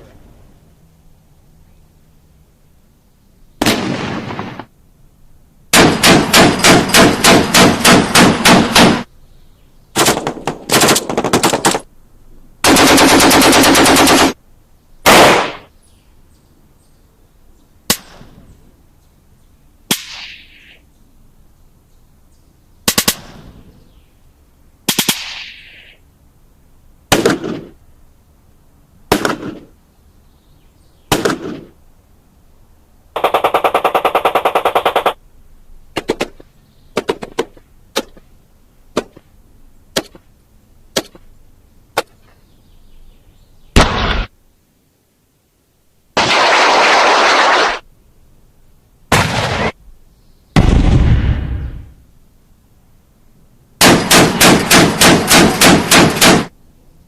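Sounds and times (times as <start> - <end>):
gunshots: 3.6 - 4.7, 5.7 - 9.1, 10.0 - 11.9, 12.6 - 14.4, 15.1 - 15.7, 27.1 - 27.8, 29.1 - 29.7, 31.1 - 31.8, 33.2 - 35.2, 43.8 - 44.3, 46.2 - 47.8, 49.1 - 49.8, 50.6 - 52.0, 53.8 - 56.5.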